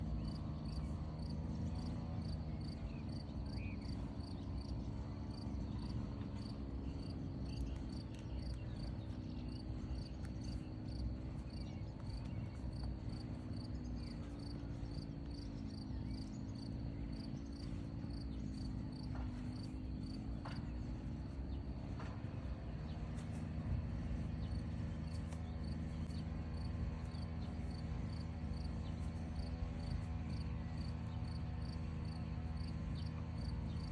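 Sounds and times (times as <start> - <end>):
low steady hum: 0.0 - 33.9
crickets chirping: 5.3 - 20.7, 26.5 - 33.9.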